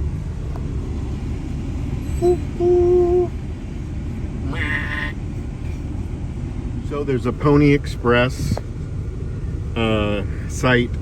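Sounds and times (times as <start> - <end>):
freight train rumbling: 0.0 - 11.0
steady warning tone: 2.0 - 3.4.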